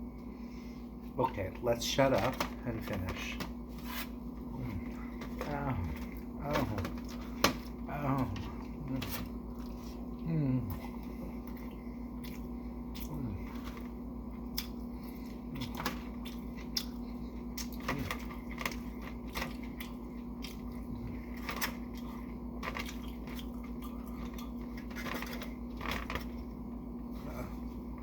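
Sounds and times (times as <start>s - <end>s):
steady low hum: 0.0s - 28.0s
chewing with wet mouth clicks: 10.9s - 13.2s, 14.3s - 17.8s, 18.7s - 20.9s, 21.7s - 24.9s.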